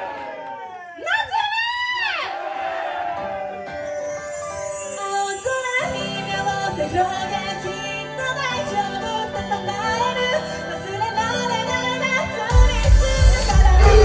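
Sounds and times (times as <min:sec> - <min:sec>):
person singing: 0:04.7 - 0:14.0
live band music: 0:12.6 - 0:14.0.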